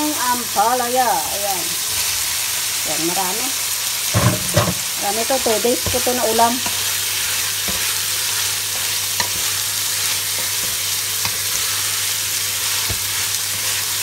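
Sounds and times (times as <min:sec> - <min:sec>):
vegetables sizzling in a pot: 0:00.0 - 0:14.0
spatula stirring: 0:05.4 - 0:14.0.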